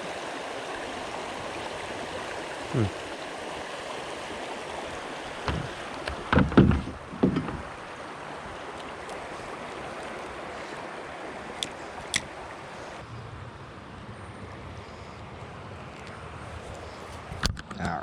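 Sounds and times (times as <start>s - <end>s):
river water over rapids: 0.0s - 17.4s
kayak paddle knocks and splashes: 5.4s - 7.9s.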